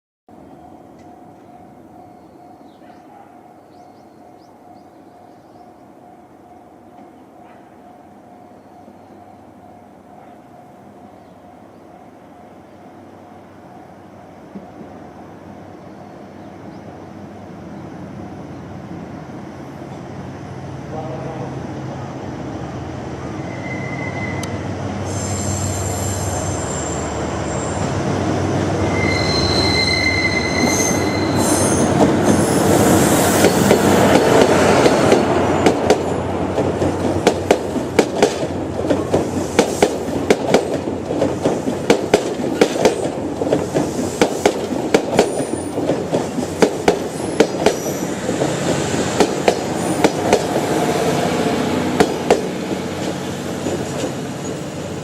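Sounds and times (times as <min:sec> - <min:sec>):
train rumbling: 0:00.3 - 0:55.0
high wheel squeals: 0:23.4 - 0:27.9, 0:28.8 - 0:33.6, 0:47.1 - 0:48.2, 0:54.2 - 0:55.0
wheels clacking over rail joints: 0:33.4 - 0:50.6, 0:51.8 - 0:55.0.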